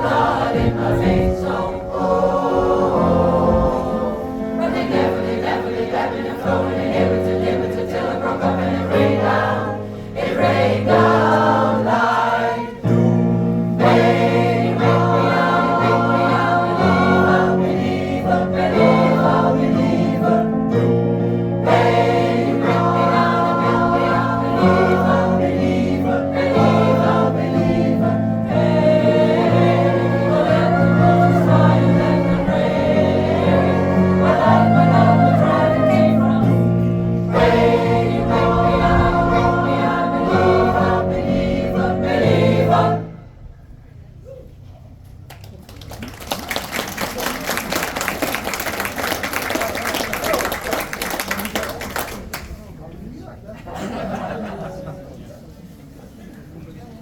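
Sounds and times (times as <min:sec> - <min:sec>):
musical accompaniment: 0:00.0 - 0:43.1
choir singing in harmony: 0:00.0 - 0:43.7.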